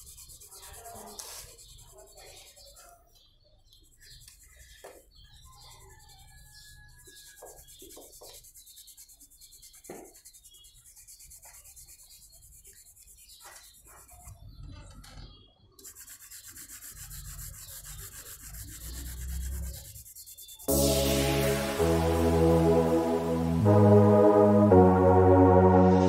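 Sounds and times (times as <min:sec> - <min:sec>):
pencil scratching on paper: 0:00.0 - 0:03.0, 0:03.7 - 0:14.4, 0:15.8 - 0:20.7.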